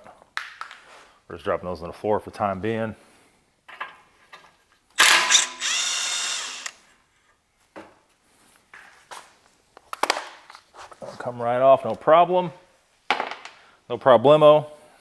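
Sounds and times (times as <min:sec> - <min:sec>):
power tool whine: 0:05.0 - 0:06.8.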